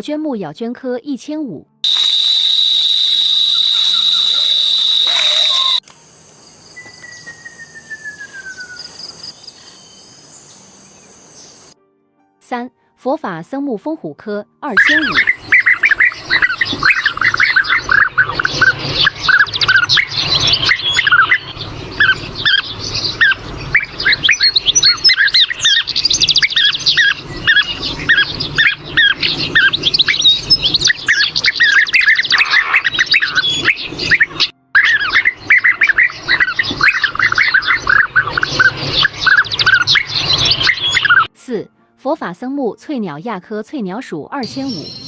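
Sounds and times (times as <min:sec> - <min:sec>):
flock of birds chirping: 0:01.9 - 0:05.8.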